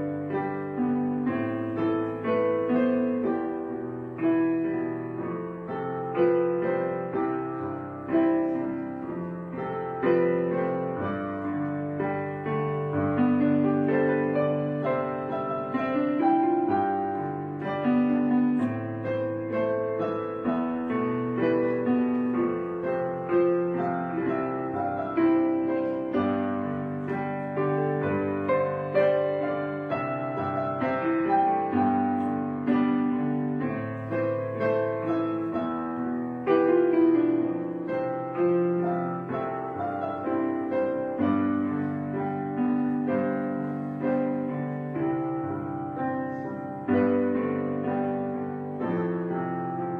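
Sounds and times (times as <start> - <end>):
slow piano chords: 0.0 - 49.9.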